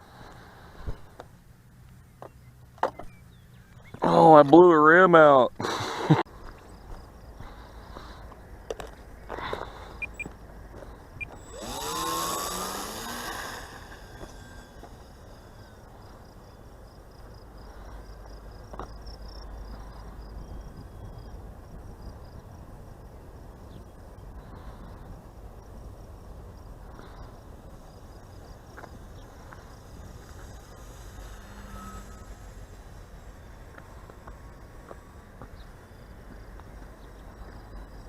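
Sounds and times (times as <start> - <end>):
steady low rumble: 5.5 - 38.0
insect chirping rapidly: 9.8 - 10.3, 11.2 - 21.4, 22.0 - 36.6.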